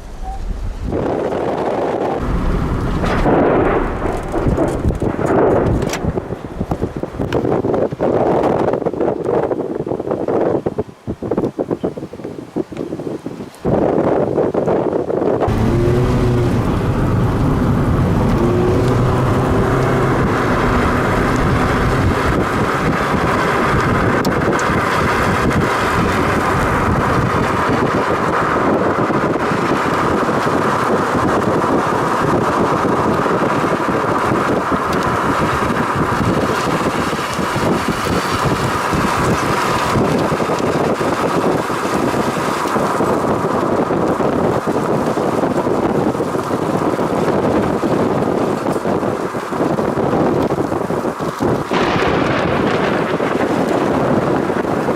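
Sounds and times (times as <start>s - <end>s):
brief pitched tones: 0.0s - 0.6s
wind blowing on microphone: 0.0s - 54.9s.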